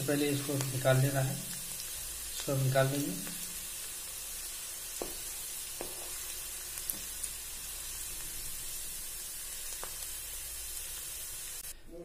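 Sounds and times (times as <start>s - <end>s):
onions sizzling in oil: 0.0s - 11.7s
wooden spatula knocking pan: 5.0s - 5.2s.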